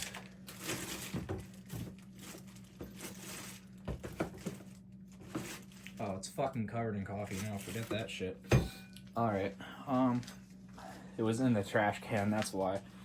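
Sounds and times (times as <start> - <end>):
rummaging through trash can: 0.0 - 6.4, 7.0 - 8.7, 11.7 - 12.9
steady low hum: 0.0 - 13.0.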